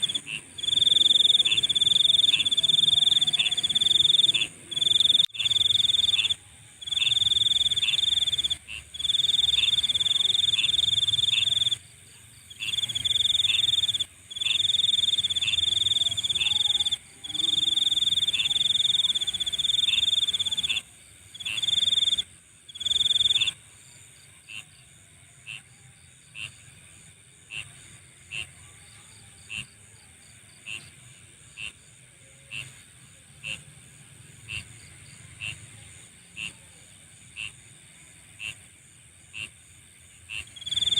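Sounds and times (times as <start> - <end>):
insect high trill: 0.0 - 11.8, 12.5 - 23.6, 40.4 - 40.9
insect short chirps: 0.0 - 11.8.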